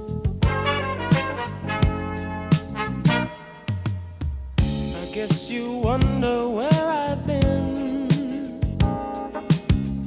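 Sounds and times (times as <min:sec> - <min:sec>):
soul song with drums and bass: 0:00.0 - 0:10.0
person singing: 0:04.9 - 0:09.6.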